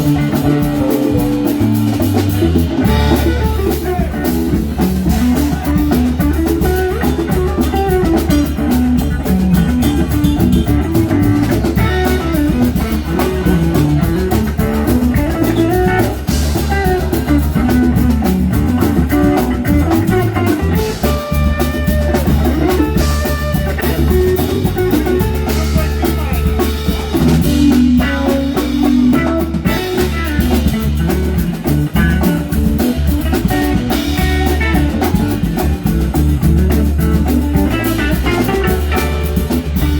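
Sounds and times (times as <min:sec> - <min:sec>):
bass: 0:00.0 - 0:39.9
drum kit: 0:00.0 - 0:39.9
electric guitar: 0:00.0 - 0:39.9.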